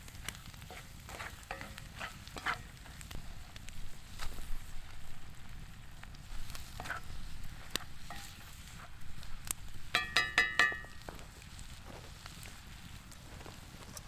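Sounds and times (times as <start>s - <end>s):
food sizzling in a pan: 0.0s - 14.0s
metal utensil clinking on pan: 1.4s - 2.6s, 8.0s - 8.5s, 9.9s - 11.1s.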